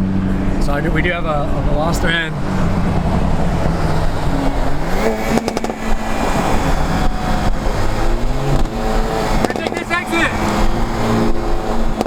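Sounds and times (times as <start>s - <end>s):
car engine accelerating: 0.0s - 12.0s
sharp exhaust crackles: 0.0s - 12.0s.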